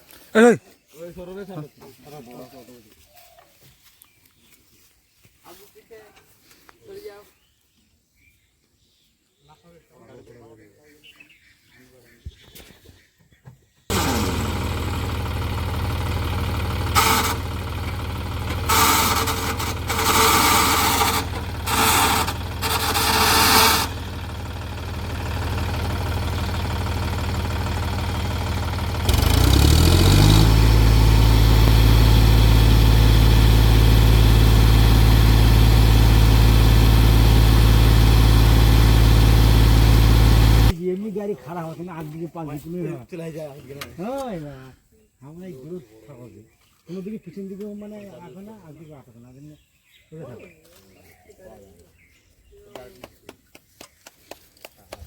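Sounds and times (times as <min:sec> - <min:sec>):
tractor diesel engine running: 0:13.9 - 0:40.8.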